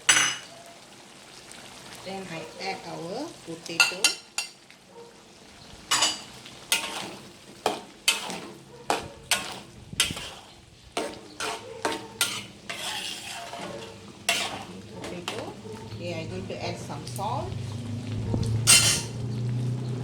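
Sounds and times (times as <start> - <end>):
spoon scraping and knocking pan: 0.0 - 0.5, 3.7 - 4.6, 5.8 - 17.7, 18.4 - 19.3
food sizzling in a pan: 0.0 - 20.0.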